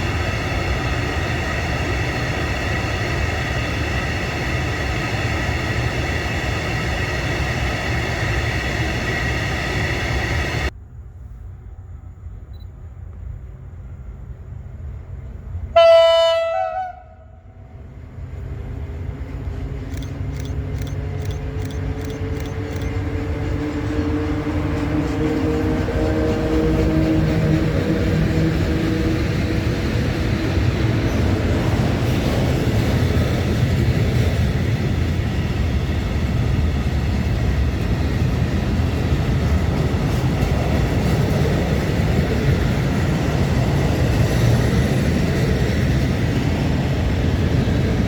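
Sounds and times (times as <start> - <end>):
regular clicking of train: 0.0 - 10.8, 11.7 - 48.0
train approaching: 0.0 - 48.0
train rumbling past: 0.0 - 48.0
train horn blast: 15.7 - 17.7.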